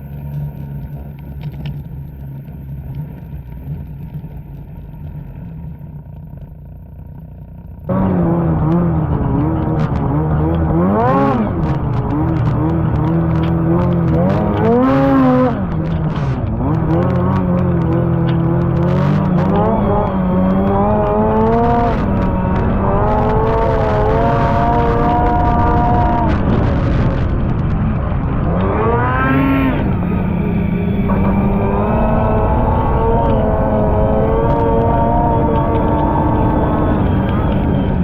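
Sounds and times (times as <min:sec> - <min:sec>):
snowmobile engine revving: 0:06.0 - 0:38.0.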